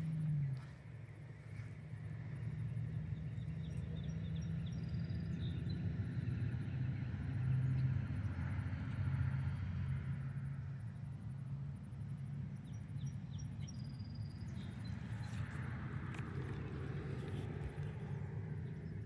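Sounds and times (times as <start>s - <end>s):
vehicle engine rumbling: 0.0s - 4.1s.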